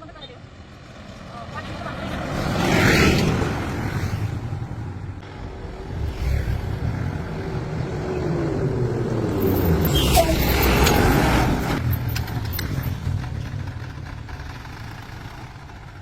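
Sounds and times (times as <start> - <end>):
vehicle engine running: 11.8 - 16.0.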